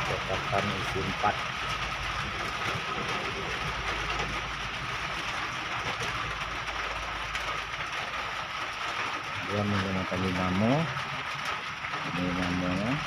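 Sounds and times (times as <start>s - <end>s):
steady mechanical noise: 0.0s - 13.0s.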